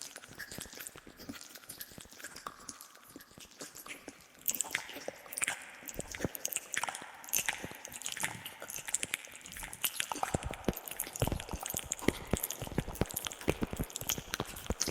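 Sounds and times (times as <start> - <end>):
wet mouth clicks and smacks: 0.2 - 14.9.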